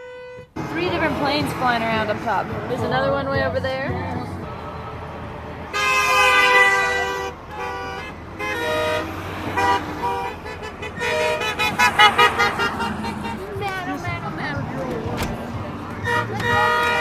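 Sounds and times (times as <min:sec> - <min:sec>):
vehicle horns honking: 0:00.0 - 0:02.4, 0:05.6 - 0:14.3, 0:15.2 - 0:17.0.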